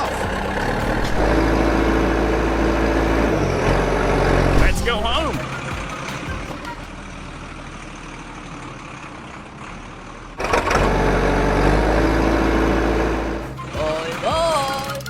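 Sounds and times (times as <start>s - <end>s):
loud abrupt sound: 0.0s - 5.7s
cartoon truck engine: 0.0s - 15.0s.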